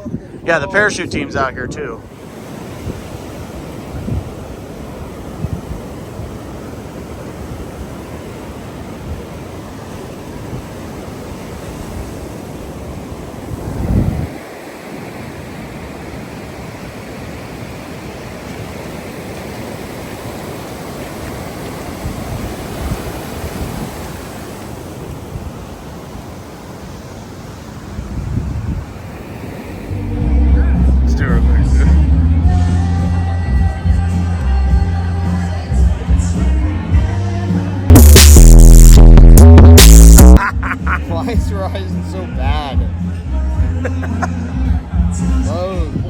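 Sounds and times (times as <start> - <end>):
wind buffeting microphone: 0.0 - 19.0, 21.8 - 26.1, 27.6 - 31.6.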